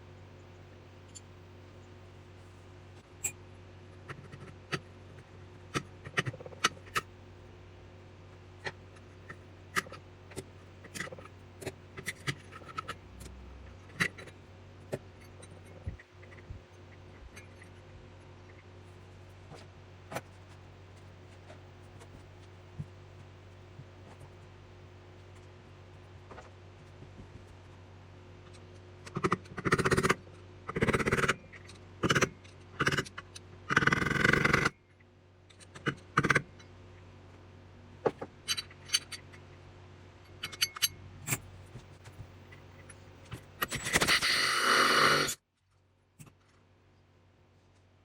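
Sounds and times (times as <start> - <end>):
metal tools scraping and clinking: 40.3 - 41.5.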